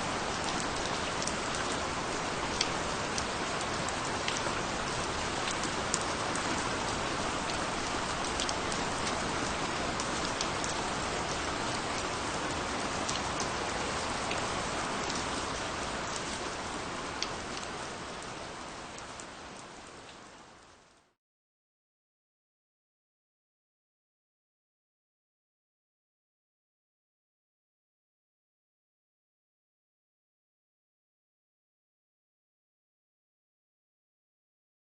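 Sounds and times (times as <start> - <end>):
steady rain falling: 0.0 - 21.2.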